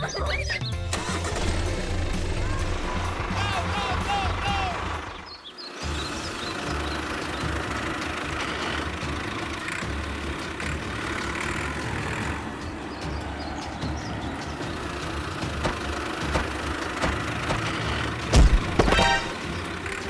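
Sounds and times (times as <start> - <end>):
small tractor engine running: 0.0 - 20.0
loud thump: 18.3 - 19.1.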